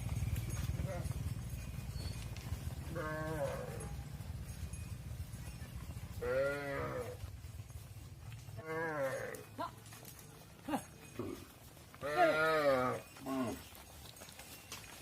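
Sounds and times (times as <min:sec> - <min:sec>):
cattle mooing: 0:02.9 - 0:03.9, 0:06.2 - 0:07.2, 0:08.6 - 0:09.4, 0:12.0 - 0:13.6.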